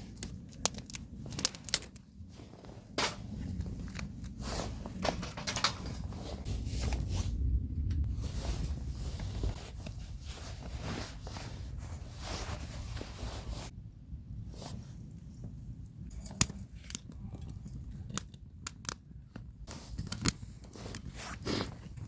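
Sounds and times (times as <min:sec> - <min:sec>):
rustling handling noise: 0:00.0 - 0:13.7, 0:19.7 - 0:22.0
low rumble: 0:00.0 - 0:16.0.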